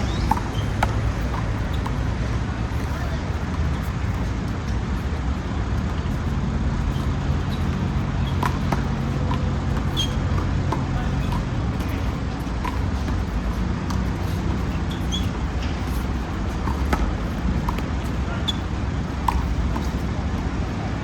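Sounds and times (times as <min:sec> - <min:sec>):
short high squeaks: 0:00.0 - 0:02.1, 0:06.8 - 0:10.4, 0:11.0 - 0:17.4, 0:18.0 - 0:18.7
road traffic rumble: 0:00.0 - 0:21.0.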